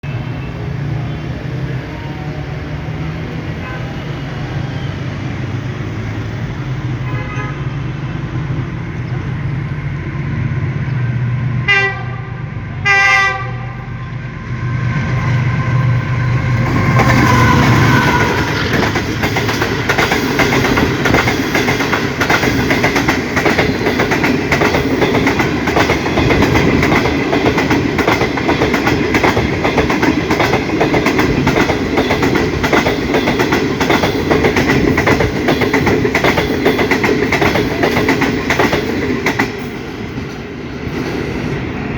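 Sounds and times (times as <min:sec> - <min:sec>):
diesel locomotive rumble: 0:00.0 - 0:41.9
train horn blasts: 0:07.0 - 0:07.9, 0:11.6 - 0:14.0, 0:16.8 - 0:18.9
train wheels clacking on rails: 0:15.0 - 0:41.9.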